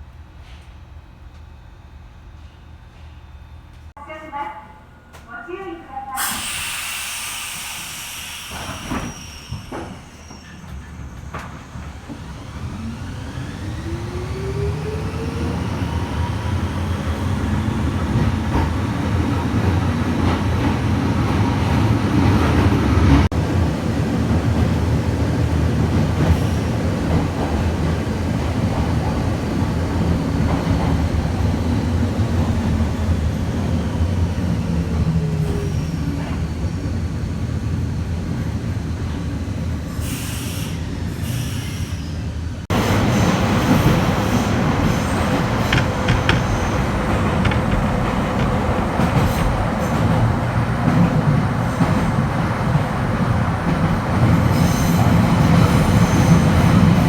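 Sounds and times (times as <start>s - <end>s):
train wheel and track rumble: 0.0s - 4.2s, 5.1s - 57.0s
traction motors whining: 6.4s - 18.4s, 42.7s - 49.8s.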